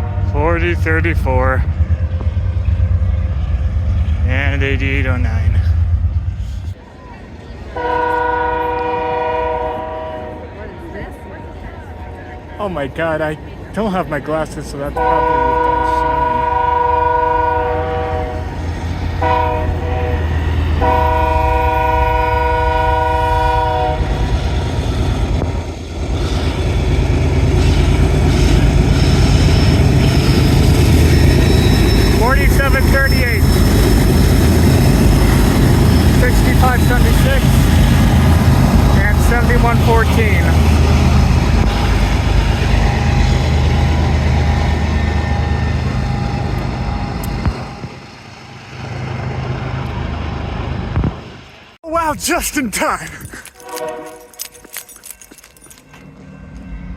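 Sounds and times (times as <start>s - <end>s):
passing train rumble: 0.0s - 52.1s, 53.2s - 56.9s
locomotive air horn: 7.8s - 10.5s, 15.0s - 18.6s, 19.2s - 24.2s, 53.6s - 54.6s.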